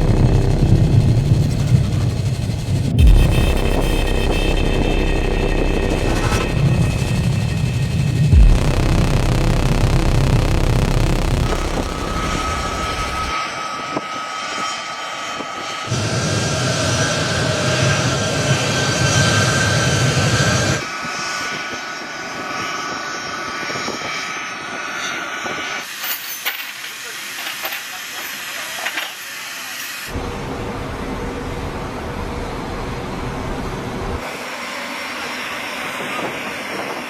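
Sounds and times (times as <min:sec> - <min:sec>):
jet engines whining: 0:00.0 - 0:25.9.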